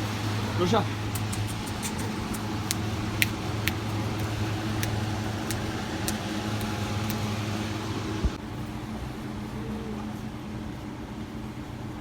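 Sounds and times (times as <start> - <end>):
low mechanical hum: 0.0 - 12.0
sharp clicks: 1.1 - 7.3.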